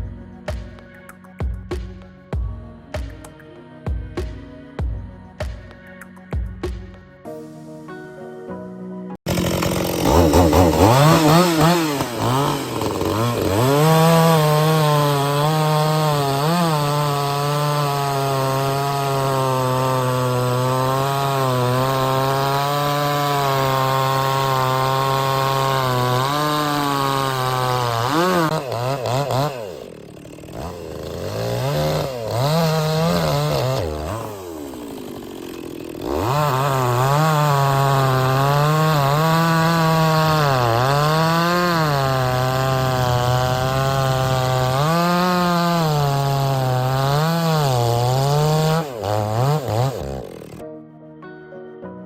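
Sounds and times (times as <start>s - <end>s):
chainsaw cutting logs: 9.3s - 50.6s.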